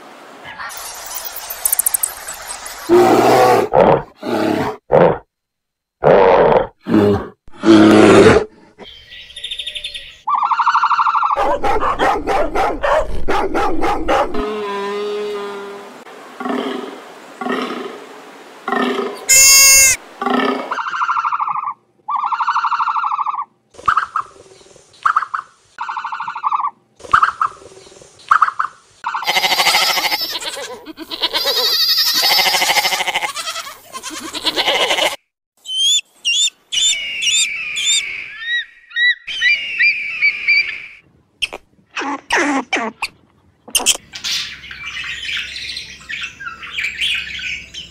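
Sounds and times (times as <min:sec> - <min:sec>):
short pitched animal cries: 0:19.3 - 0:20.0
bird high falling calls: 0:35.6 - 0:41.0.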